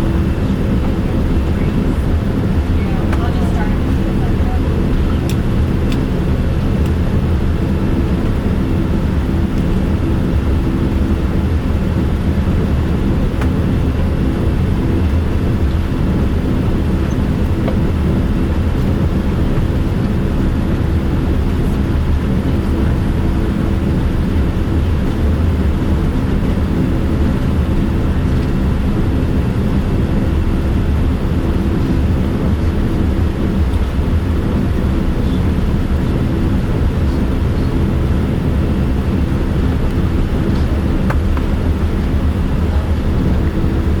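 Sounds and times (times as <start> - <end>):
airplane cabin rumble: 0.0 - 44.0.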